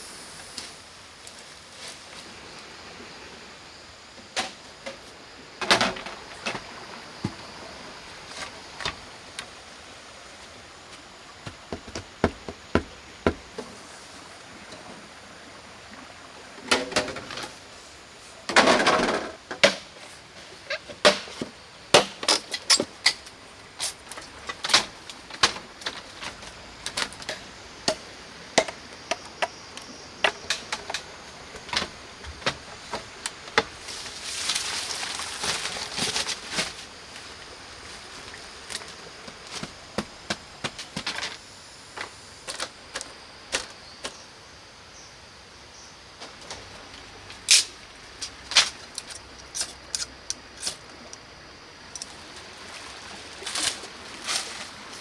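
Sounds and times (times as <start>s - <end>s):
faint steady hiss: 0.0s - 55.0s
sharp knocks and taps: 11.4s - 13.6s.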